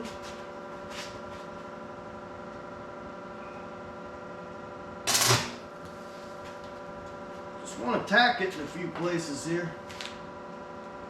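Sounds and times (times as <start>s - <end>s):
welder transformer humming: 0.0s - 11.0s
welding arc crackle: 5.1s - 5.7s.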